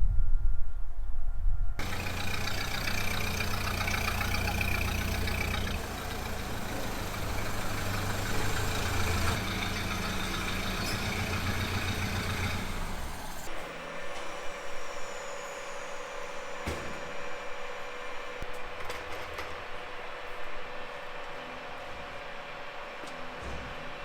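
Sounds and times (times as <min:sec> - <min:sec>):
car engine idling: 0:01.8 - 0:13.6.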